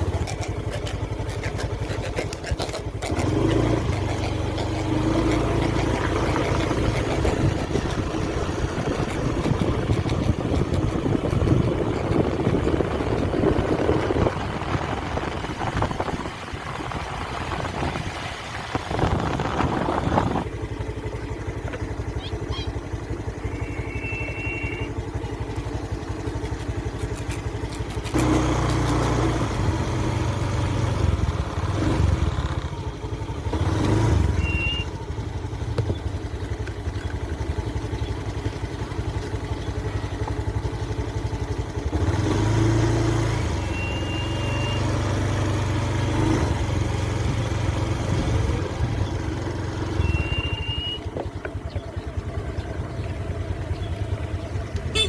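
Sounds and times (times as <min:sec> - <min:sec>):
low engine rumble: 0:00.0 - 0:55.0
high chirps: 0:50.0 - 0:51.1.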